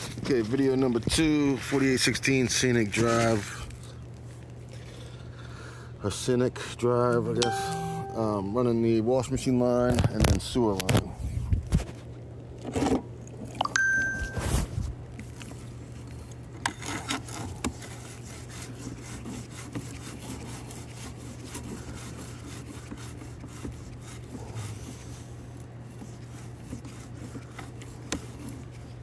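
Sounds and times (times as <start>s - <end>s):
cable scraping through drain pipe: 14.6s - 29.0s.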